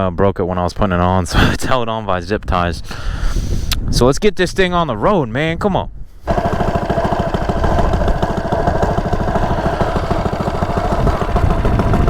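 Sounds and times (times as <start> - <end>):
small engine running: 6.3 - 12.0.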